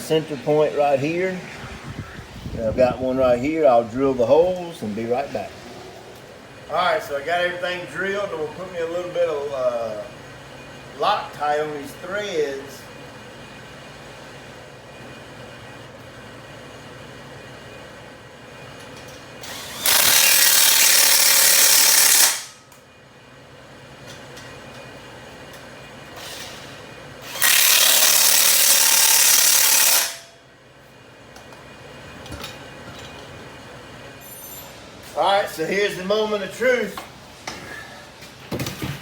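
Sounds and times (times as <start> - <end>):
power tool driving bolts: 19.4 - 22.6, 26.2 - 30.3.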